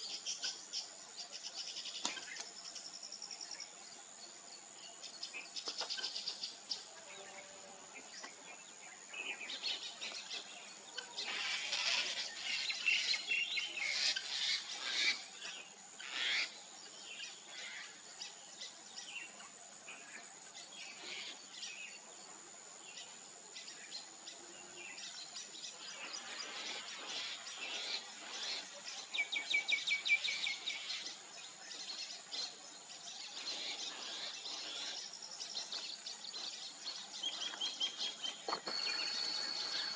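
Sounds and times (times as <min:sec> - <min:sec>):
weaver birds chattering: 0:00.0 - 0:22.2, 0:22.8 - 0:39.9
steady high whine: 0:38.5 - 0:39.9.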